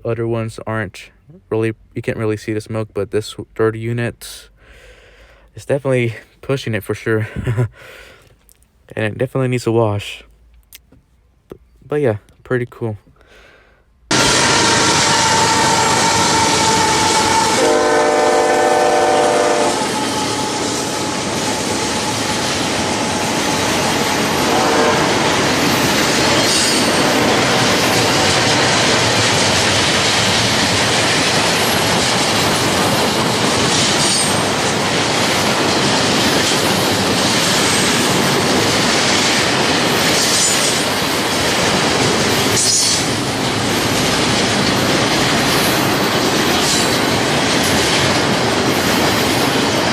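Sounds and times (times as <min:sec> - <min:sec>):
locomotive horn chord: 0:14.1 - 0:21.3, 0:24.4 - 0:25.3
freight cars clacking on rails: 0:19.8 - 0:49.9.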